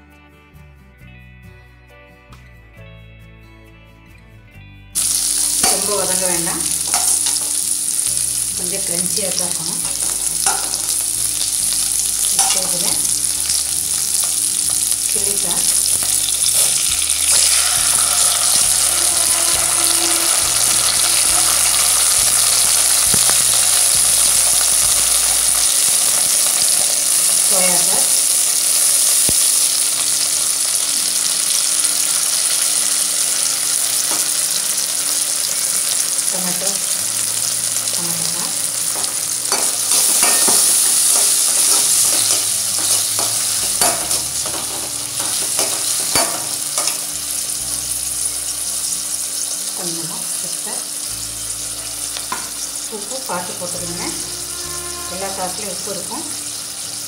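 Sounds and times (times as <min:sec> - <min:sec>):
vegetables sizzling in hot oil: 0:05.0 - 0:57.0
metal skimmer scraping pan: 0:54.0 - 0:55.6.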